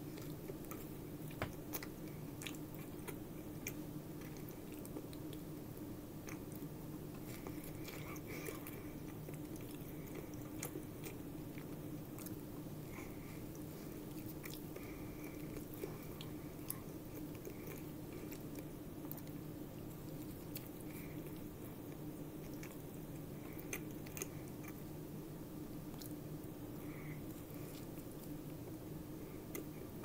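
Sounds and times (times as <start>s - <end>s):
person chewing a burger: 0.0s - 25.0s, 25.6s - 30.0s
steady low hum: 0.0s - 30.0s.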